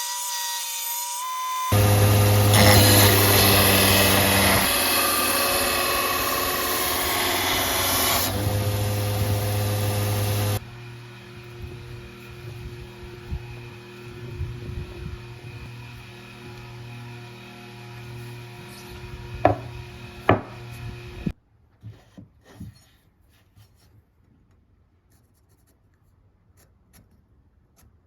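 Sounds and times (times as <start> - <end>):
power tool grinding metal: 0.0 - 21.3.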